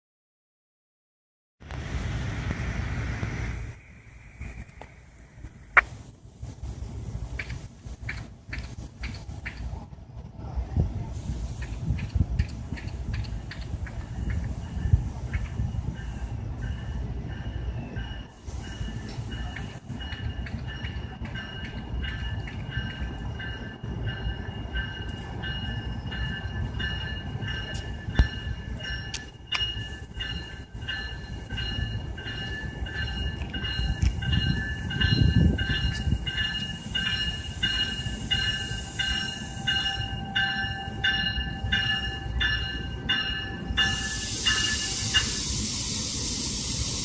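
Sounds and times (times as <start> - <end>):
train rumbling: 1.6 - 47.0
loud hiss of air: 11.0 - 12.0, 43.8 - 47.0
bell ringing: 16.0 - 45.4.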